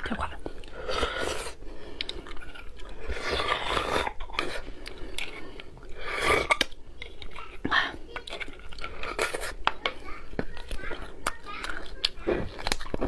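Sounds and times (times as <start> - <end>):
wet mouth sounds: 0.0 - 9.8
biting and chewing meat: 0.4 - 13.0.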